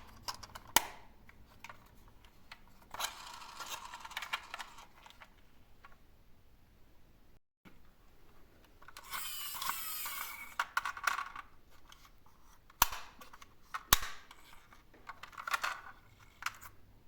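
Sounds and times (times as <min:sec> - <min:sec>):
plastic toy vehicles rattling: 0:02.7 - 0:05.4, 0:14.4 - 0:16.8.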